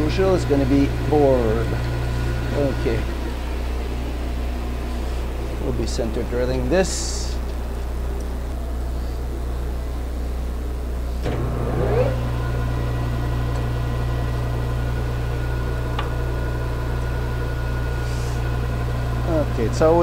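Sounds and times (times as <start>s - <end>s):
metal lathe running: 0.0s - 8.5s, 10.8s - 20.0s
lathe clunk: 11.2s - 11.8s, 15.8s - 17.2s.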